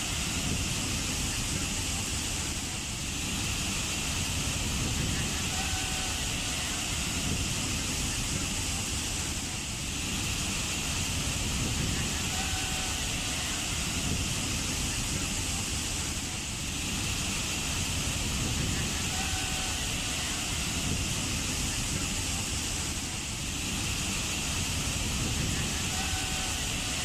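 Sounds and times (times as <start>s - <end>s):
waterfall roaring: 0.0s - 27.0s.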